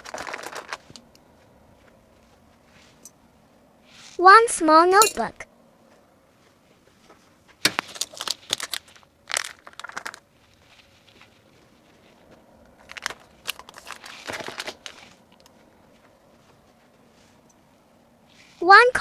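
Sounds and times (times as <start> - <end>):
packaging crinkling: 0.0 - 1.2, 7.6 - 15.5.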